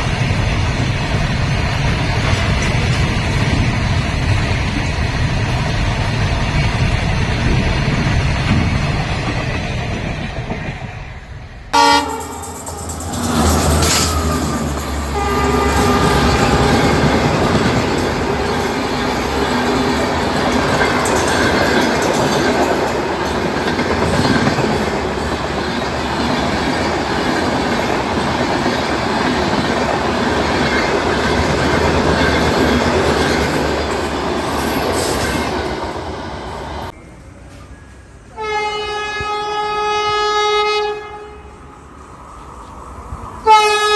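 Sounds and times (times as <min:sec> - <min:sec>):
train wheels rushing on rails: 0:00.0 - 0:40.2
train horn: 0:11.7 - 0:18.8, 0:38.3 - 0:41.6, 0:43.4 - 0:43.9.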